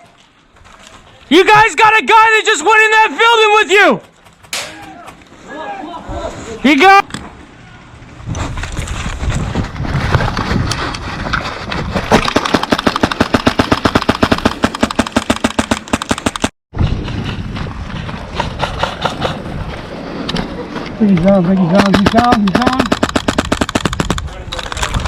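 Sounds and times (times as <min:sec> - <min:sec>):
airsoft rifle firing: 0:12.2 - 0:16.5, 0:21.7 - 0:24.2.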